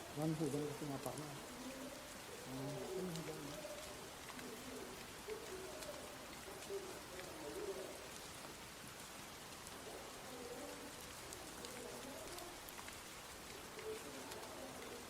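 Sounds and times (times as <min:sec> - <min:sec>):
dove cooing: 0:00.0 - 0:15.0
steady light rain: 0:00.0 - 0:15.0
water dripping: 0:00.0 - 0:15.0.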